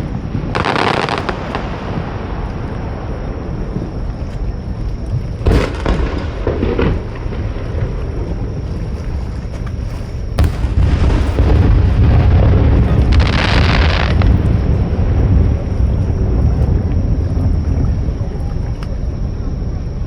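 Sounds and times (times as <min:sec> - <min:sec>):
firework crackling: 0:00.0 - 0:03.7, 0:05.4 - 0:08.3, 0:10.4 - 0:15.6
firework bangs: 0:00.0 - 0:03.9, 0:05.4 - 0:08.4, 0:10.4 - 0:15.7
heavy low rumble: 0:00.0 - 0:20.0.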